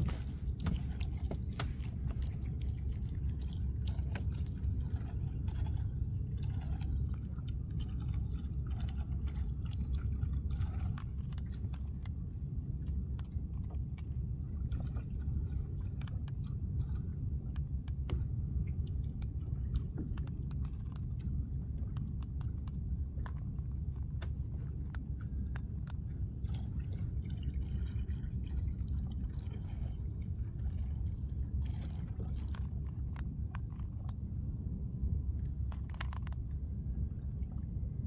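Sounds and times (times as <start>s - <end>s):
small waves lapping: 0.0s - 12.1s, 24.2s - 33.1s.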